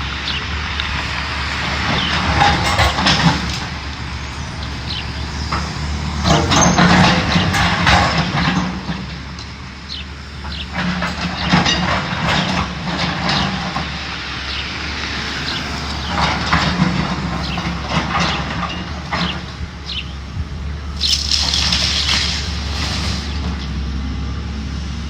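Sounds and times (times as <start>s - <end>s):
heavy machine engine running: 0.0s - 25.0s
debris crunching and clattering: 1.8s - 3.8s, 5.5s - 9.5s, 10.5s - 14.6s, 21.0s - 23.6s.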